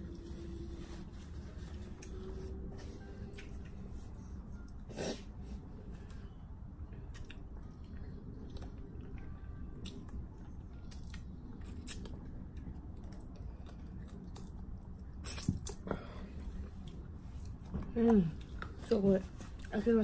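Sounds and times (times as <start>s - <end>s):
low background rumble: 0.0s - 20.0s
person chewing noodle soup: 1.9s - 5.3s, 6.9s - 17.8s.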